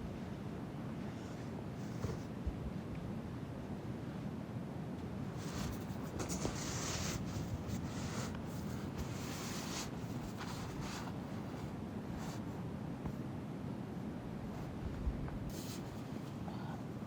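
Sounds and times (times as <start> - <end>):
irregular rustling and scratching: 1.0 - 2.4, 5.3 - 13.3, 14.5 - 16.5
steady low rumble: 10.1 - 15.5.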